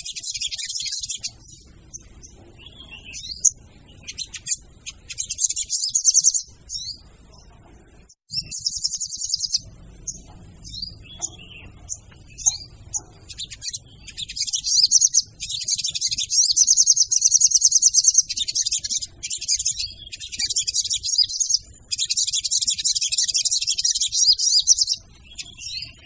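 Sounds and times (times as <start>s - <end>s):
songbird chattering trills: 0.0s - 7.5s, 8.3s - 26.0s.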